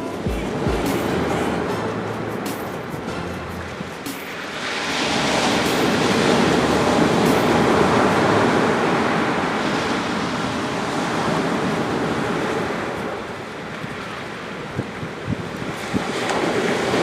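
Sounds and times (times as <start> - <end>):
surf breaking on beach: 0.0 - 17.0
faint fire crackles: 3.8 - 17.0.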